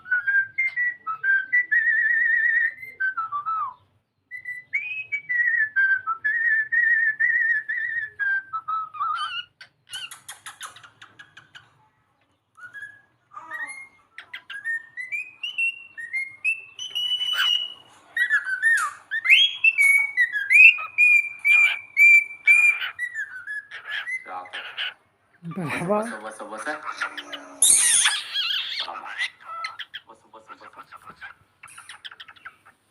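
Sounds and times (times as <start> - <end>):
cockatiel whistling: 0.0 - 11.5, 12.6 - 24.9, 26.7 - 30.0
cockatiel chattering clicks: 9.6 - 11.6.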